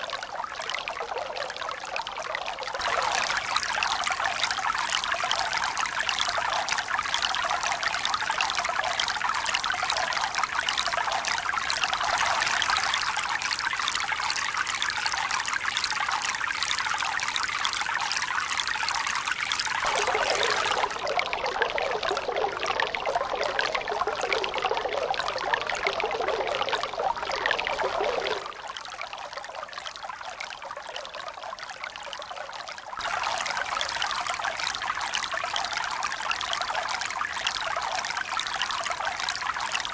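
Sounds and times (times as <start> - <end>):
water flowing and trickling: 0.0 - 39.9
water rushing: 2.8 - 8.4, 10.8 - 14.3, 19.7 - 21.1.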